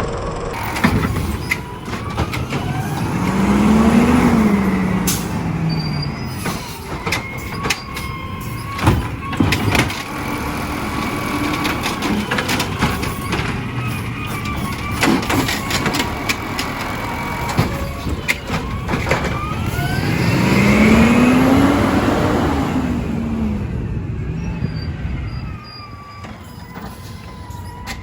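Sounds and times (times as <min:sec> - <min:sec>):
garbage truck engine revving: 0:00.0 - 0:28.0
metal knocks and clanks: 0:00.6 - 0:20.8.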